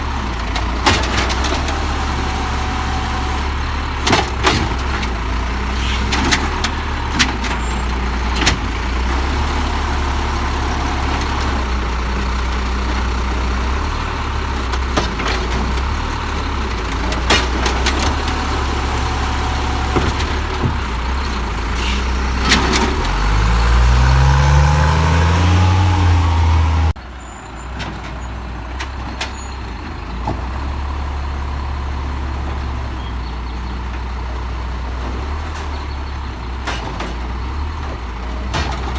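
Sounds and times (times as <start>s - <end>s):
diesel engine idling: 1.6s - 27.7s
engine revving: 17.2s - 27.0s.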